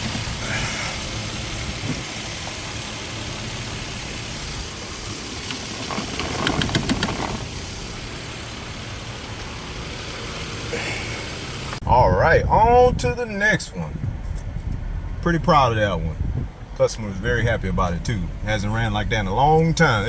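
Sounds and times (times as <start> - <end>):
car engine running: 0.0 - 11.8.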